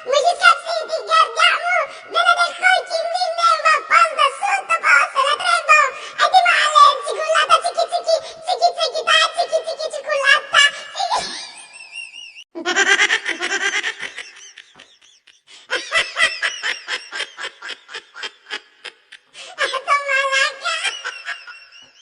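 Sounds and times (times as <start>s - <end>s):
person laughing: 11.2s - 22.0s.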